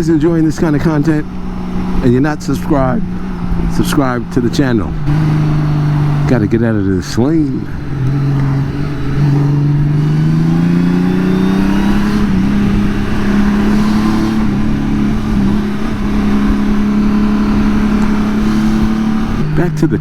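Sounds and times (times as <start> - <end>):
motorcycle engine accelerating: 0.0 - 20.0
road noise: 0.0 - 20.0
wind noise: 0.0 - 20.0.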